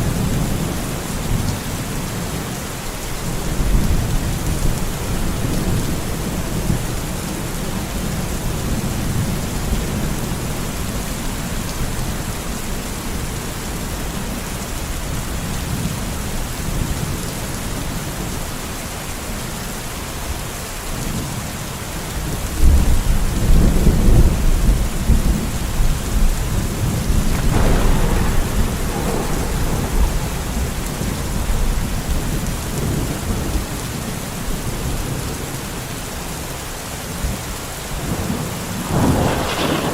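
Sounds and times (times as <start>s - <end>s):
steady rain: 0.0s - 39.9s
rolling thunder: 22.6s - 34.6s, 38.0s - 39.9s
thunder clap: 26.1s - 33.7s, 38.1s - 39.9s.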